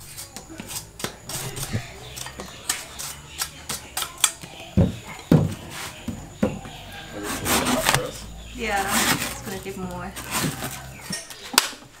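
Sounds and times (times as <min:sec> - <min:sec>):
cleaver slicing coconut husk: 0:00.0 - 0:06.1, 0:07.1 - 0:11.8
heavy chopping thuds on wood: 0:04.8 - 0:06.7.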